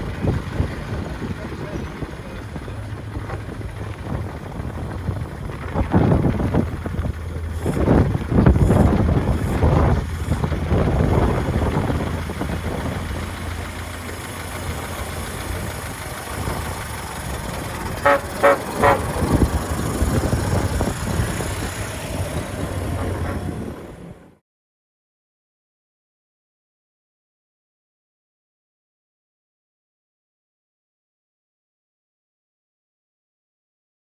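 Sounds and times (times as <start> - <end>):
bus engine running: 0.0 - 24.4
horn toots: 17.8 - 19.7.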